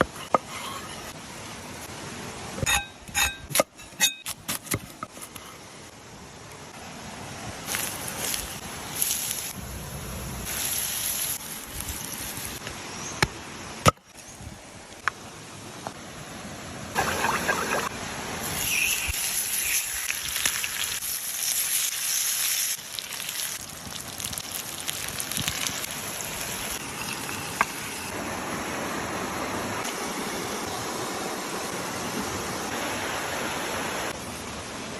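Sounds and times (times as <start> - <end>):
fish sizzling in hot oil: 7.7 - 12.6, 18.4 - 28.2.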